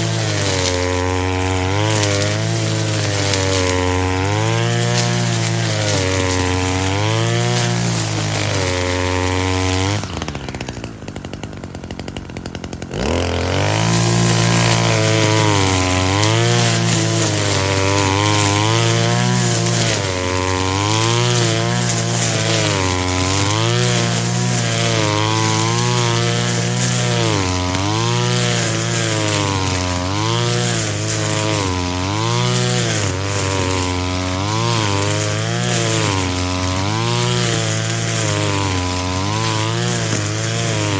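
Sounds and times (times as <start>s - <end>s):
brush cutter engine: 0.0s - 40.9s.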